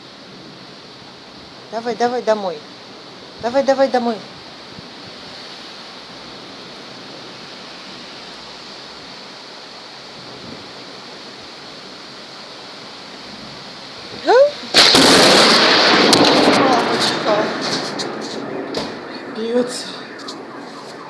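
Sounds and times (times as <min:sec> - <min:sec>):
heavy rain: 0:00.0 - 0:21.0
loud thunder crack: 0:14.2 - 0:21.0.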